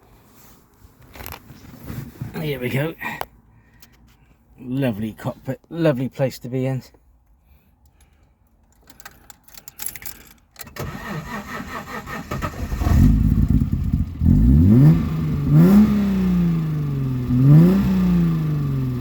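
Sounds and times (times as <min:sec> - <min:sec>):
car engine starting and revving: 0:10.6 - 0:19.0.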